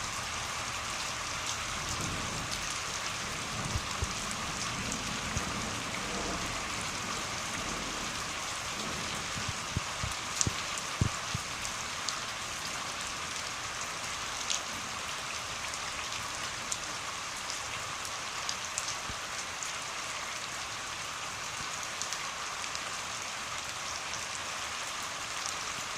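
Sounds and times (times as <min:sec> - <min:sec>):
rain hissing: 0:00.0 - 0:20.0
water drips and taps: 0:09.4 - 0:11.5.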